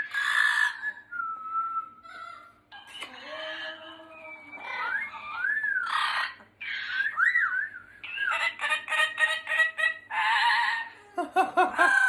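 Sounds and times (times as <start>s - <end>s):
parrot whistling and calling: 4.0s - 10.9s.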